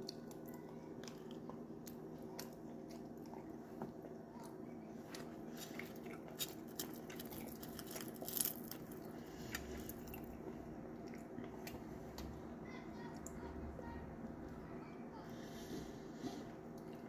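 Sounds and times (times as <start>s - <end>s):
chewing with crunchy clicks: 0.0s - 12.3s.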